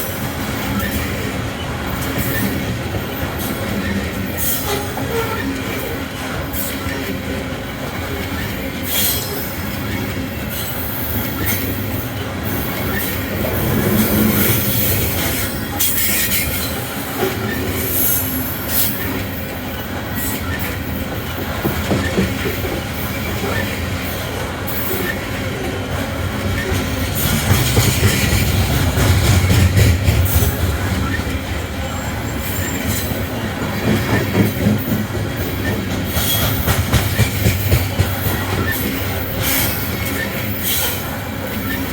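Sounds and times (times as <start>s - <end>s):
train wheels rumbling on rails: 0.0s - 41.9s
high squeals of wheels: 3.4s - 5.8s, 30.3s - 33.2s, 38.4s - 41.9s.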